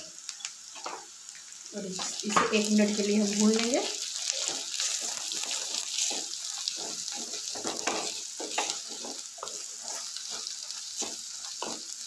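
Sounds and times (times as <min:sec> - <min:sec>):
onions frying in oil: 0:00.0 - 0:12.0
wooden spatula scraping: 0:02.9 - 0:12.0.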